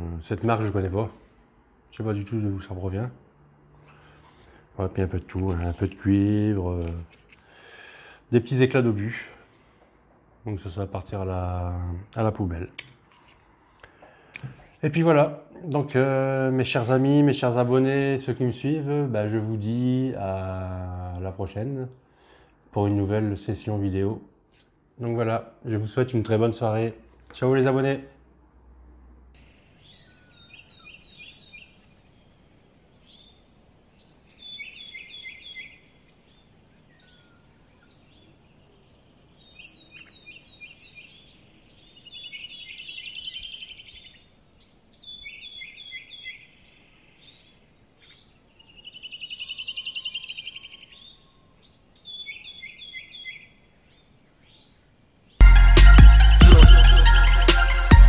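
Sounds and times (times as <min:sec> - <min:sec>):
songbird chirps and trills: 0:29.4 - 0:57.9.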